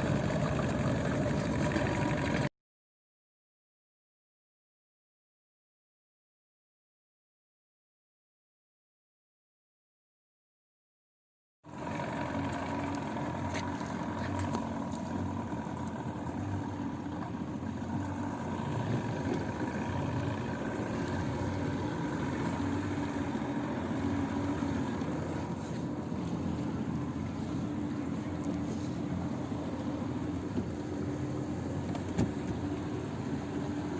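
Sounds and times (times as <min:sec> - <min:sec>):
outboard motor running: 0:00.0 - 0:02.5, 0:11.7 - 0:33.9.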